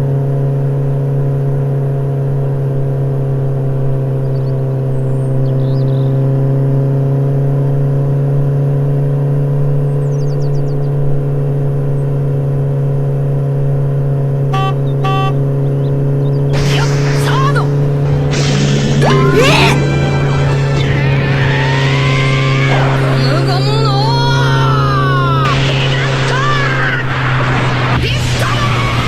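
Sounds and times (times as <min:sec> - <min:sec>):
motorcycle engine drone: 0:00.0 - 0:29.0
faint bird chirps: 0:09.8 - 0:11.0.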